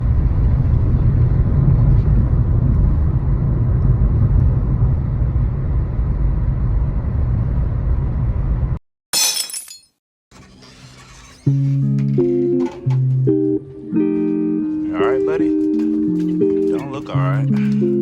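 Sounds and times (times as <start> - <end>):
car driving rumble: 0.0 - 9.8.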